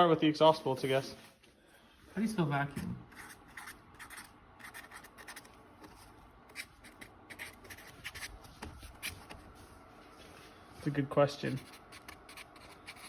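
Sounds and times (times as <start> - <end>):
faint scratching of handwriting: 3.1 - 13.0.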